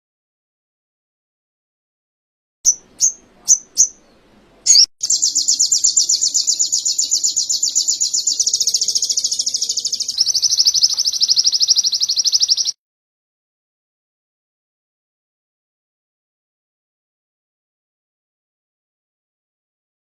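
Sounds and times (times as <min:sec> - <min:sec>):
songbird chirping and trilling: 0:02.7 - 0:12.8.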